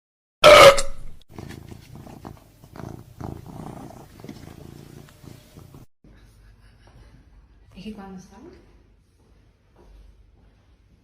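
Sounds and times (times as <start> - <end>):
cat purring: 1.3 - 5.9.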